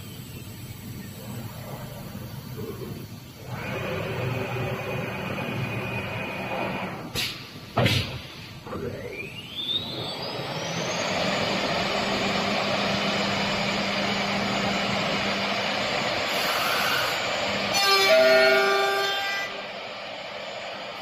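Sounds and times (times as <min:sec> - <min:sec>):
low hum: 0:00.0 - 0:17.8
router spindle whining: 0:01.5 - 0:07.1, 0:08.7 - 0:21.0
rushing noise of cutting: 0:03.4 - 0:07.3, 0:09.2 - 0:21.0.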